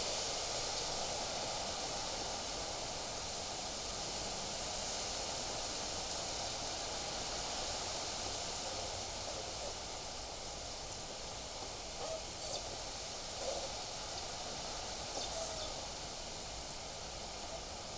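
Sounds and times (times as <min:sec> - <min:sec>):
wind: 0:05.5 - 0:17.9.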